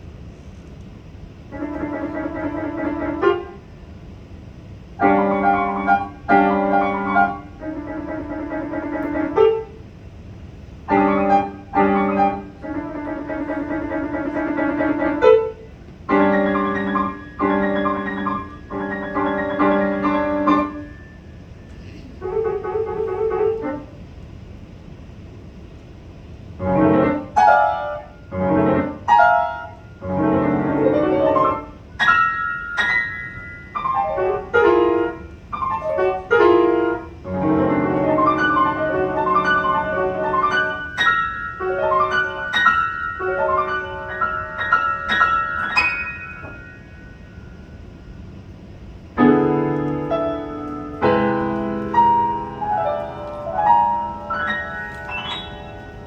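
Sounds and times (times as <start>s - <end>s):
solo piano classical piece: 0.0s - 56.0s.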